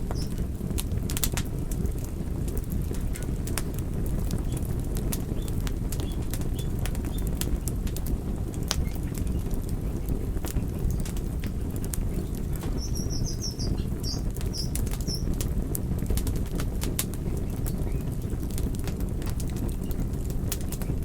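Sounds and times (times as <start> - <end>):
fire crackling and popping: 0.0 - 21.0
high chirps: 12.8 - 14.8.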